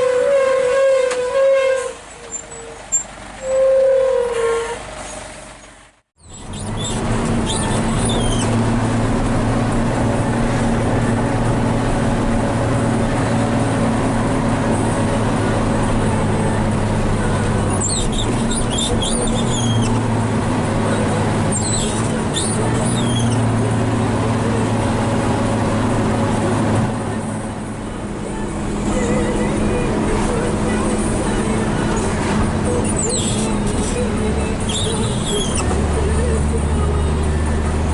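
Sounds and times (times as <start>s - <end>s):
short high-pitched squeaks: 0.9s - 8.6s, 17.6s - 20.1s, 21.5s - 23.6s, 31.9s - 35.9s
truck diesel engine running: 2.0s - 37.9s.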